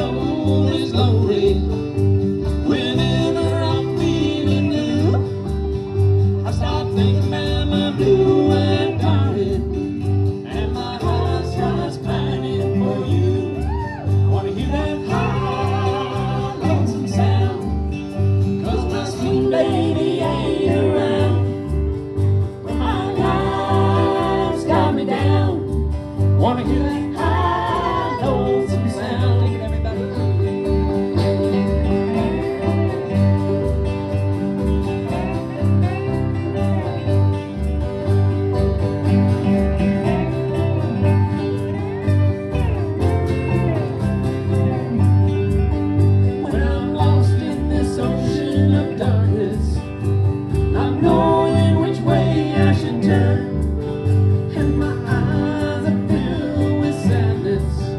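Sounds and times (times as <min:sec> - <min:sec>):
person singing: 0:00.0 - 0:33.8, 0:46.1 - 0:57.9
plucked string band playing: 0:00.0 - 0:57.9.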